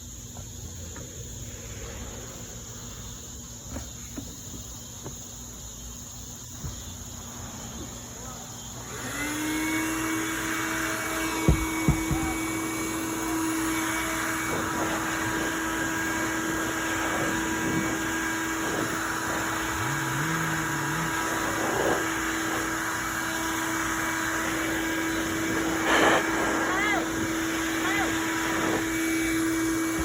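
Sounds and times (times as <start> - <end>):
vacuum cleaner running: 7.3 - 30.0.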